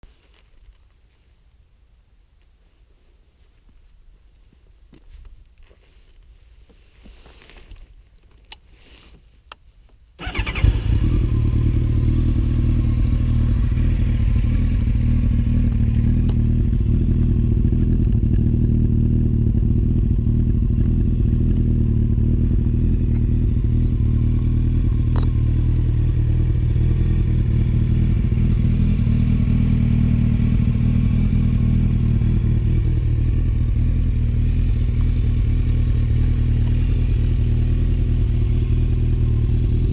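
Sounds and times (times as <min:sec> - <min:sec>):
motorcycle engine starting and idling: 0:10.2 - 0:39.9.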